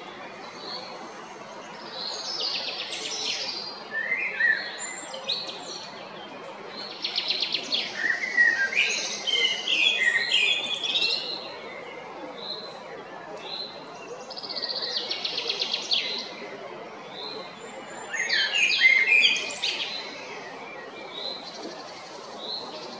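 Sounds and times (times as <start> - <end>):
blackbird singing: 1.8 - 5.9, 6.7 - 11.7, 13.5 - 16.4, 17.1 - 22.9.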